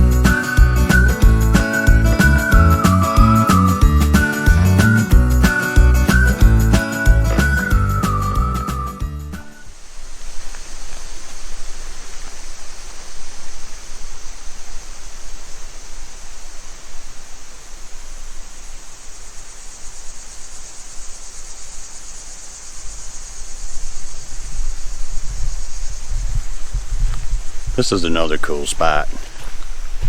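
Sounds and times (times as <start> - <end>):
creek water rushing: 9.4 - 19.1.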